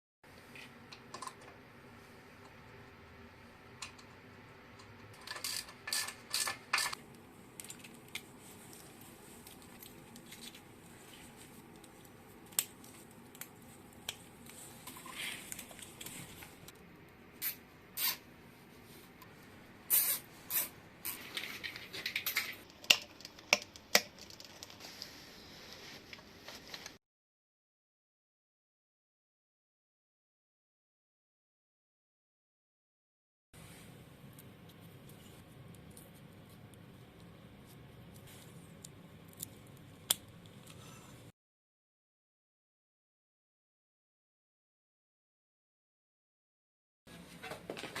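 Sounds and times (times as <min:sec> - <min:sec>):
short hissing bursts: 0:19.9 - 0:20.8.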